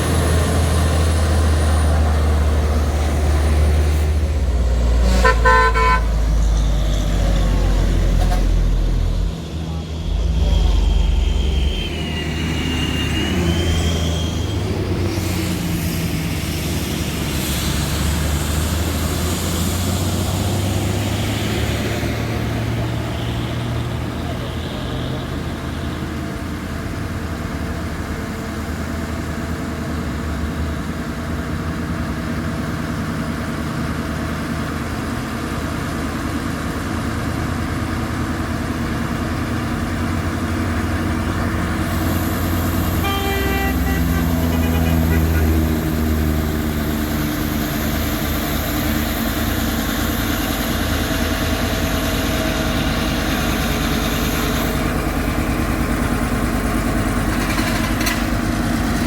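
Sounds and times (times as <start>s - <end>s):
truck engine running: 0.0s - 24.6s, 26.2s - 59.0s
short rising whine: 6.4s - 15.2s.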